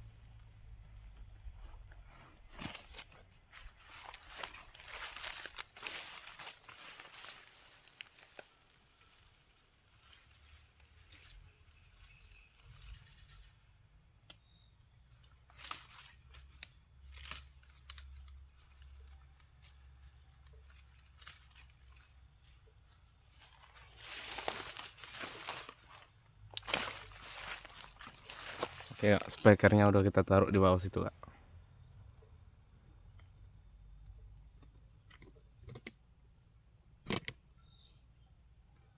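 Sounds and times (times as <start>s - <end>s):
insects chirping: 0.0s - 38.9s
rustling: 1.7s - 8.6s, 15.5s - 29.4s.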